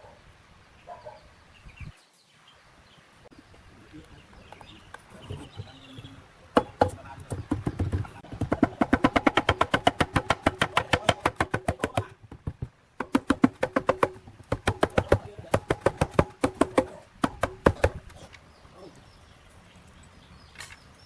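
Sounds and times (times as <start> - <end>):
rapid hammer blows on metal: 6.6 - 18.1.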